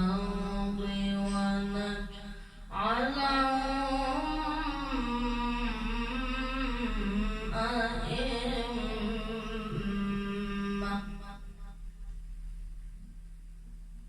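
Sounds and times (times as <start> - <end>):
man chanting melodically: 0.0 - 11.8
short breath: 2.2 - 2.7.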